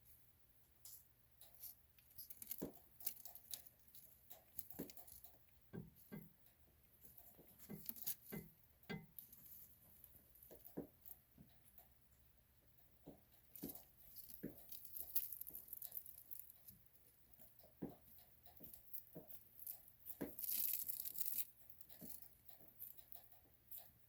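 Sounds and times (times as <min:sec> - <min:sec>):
dry skin crackling and tearing: 0:01.5 - 0:05.3, 0:07.2 - 0:08.5, 0:13.5 - 0:16.9, 0:18.6 - 0:23.3.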